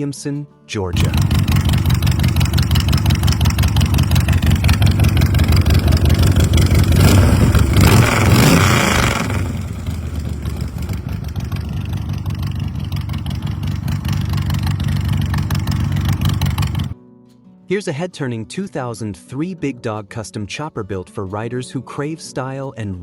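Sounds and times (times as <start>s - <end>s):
motorcycle engine running: 1.0s - 17.0s.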